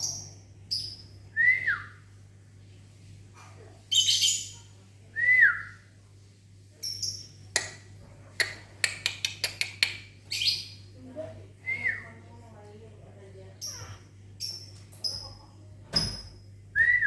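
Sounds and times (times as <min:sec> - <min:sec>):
lovebirds shrill calls and chirps: 0:00.0 - 0:01.3, 0:03.9 - 0:04.7, 0:06.8 - 0:07.7, 0:08.4 - 0:11.0, 0:13.6 - 0:16.3.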